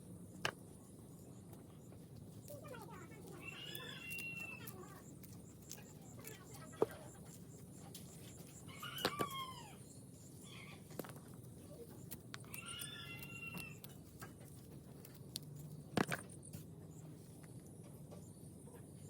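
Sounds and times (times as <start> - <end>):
chickens calling: 3.1 - 7.4, 8.2 - 11.0, 11.7 - 14.0.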